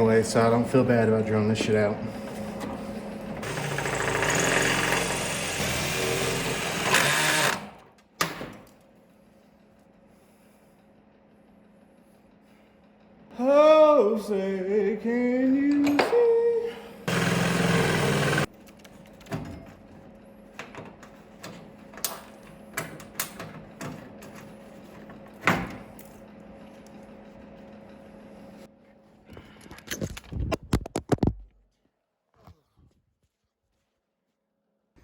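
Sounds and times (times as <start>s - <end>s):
power tool running: 3.3s - 7.9s, 17.0s - 18.5s.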